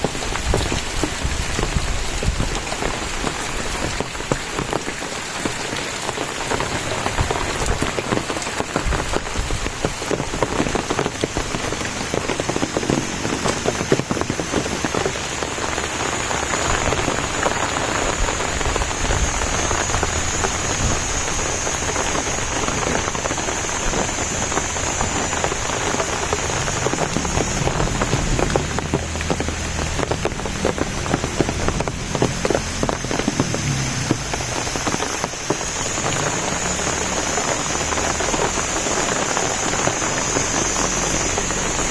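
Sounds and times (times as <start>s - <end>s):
rain pattering on surfaces: 0.0s - 41.9s
faint high whine: 10.2s - 41.9s.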